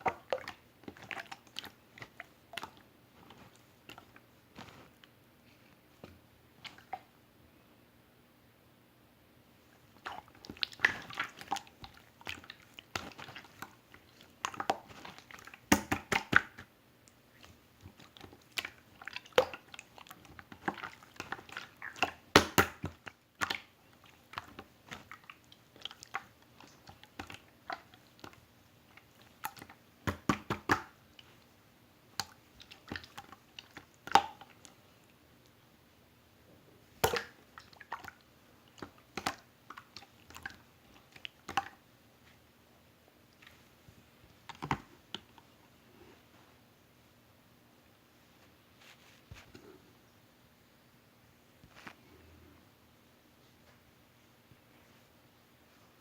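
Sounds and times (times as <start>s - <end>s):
slime squelching and popping: 0.0s - 5.0s, 9.9s - 31.4s, 32.1s - 34.8s, 36.9s - 41.8s.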